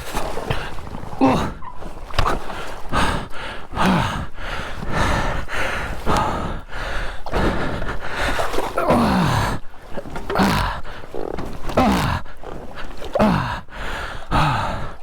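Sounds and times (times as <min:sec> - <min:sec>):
man grunting and groaning: 0:01.2 - 0:01.6, 0:03.8 - 0:04.3, 0:08.7 - 0:09.6, 0:10.3 - 0:10.8, 0:11.7 - 0:12.4, 0:13.1 - 0:13.7, 0:14.3 - 0:15.0
man breathing hard: 0:02.5 - 0:09.7, 0:13.1 - 0:15.0.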